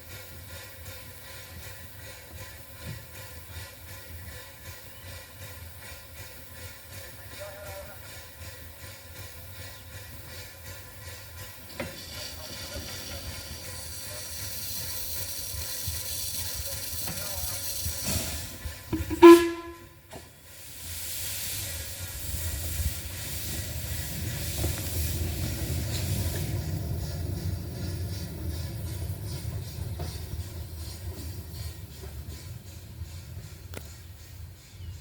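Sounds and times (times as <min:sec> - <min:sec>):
steam locomotive hissing: 0:00.0 - 0:35.0
loud pitched whistle blast: 0:19.0 - 0:19.9.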